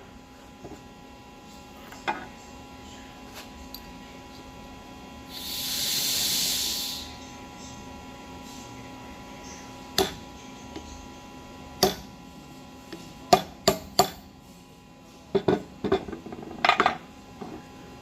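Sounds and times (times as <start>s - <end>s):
faint steady hum: 0.0s - 18.0s
hammer tapping metal punch: 10.0s - 10.2s, 11.8s - 12.1s, 13.3s - 14.3s.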